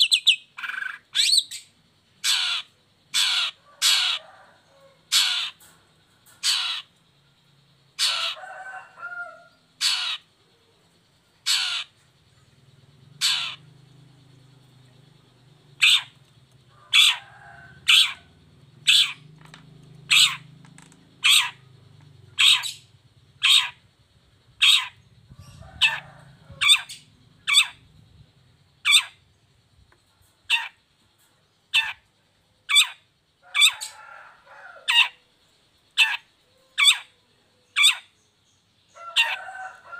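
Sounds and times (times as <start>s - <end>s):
shrike harsh calls: 13.1s - 14.4s, 15.7s - 23.8s.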